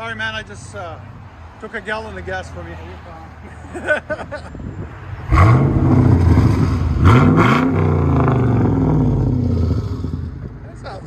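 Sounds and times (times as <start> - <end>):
loud car engine revving: 5.2 - 10.6.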